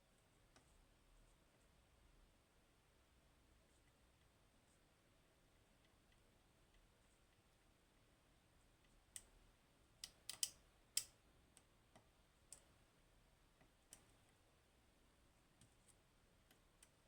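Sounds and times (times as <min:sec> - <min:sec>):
lock picking metallic clicks: 0:10.0 - 0:11.1.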